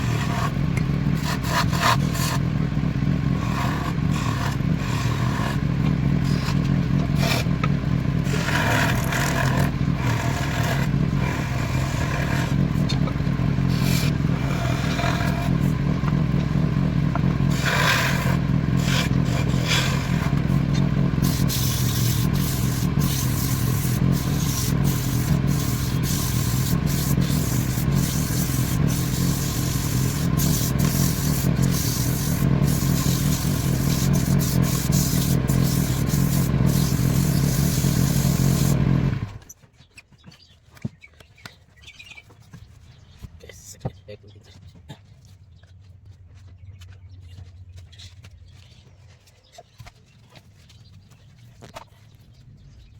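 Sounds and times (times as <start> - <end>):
wood lathe motor hum: 0.0 - 2.4, 3.2 - 39.5
tool scraping spinning wood: 0.0 - 39.6.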